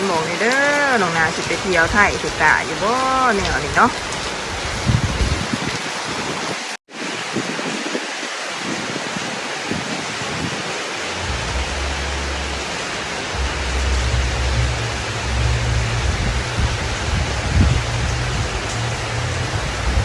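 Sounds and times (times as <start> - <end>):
heavy rain pouring: 0.0 - 20.0
low rumble: 11.1 - 20.0.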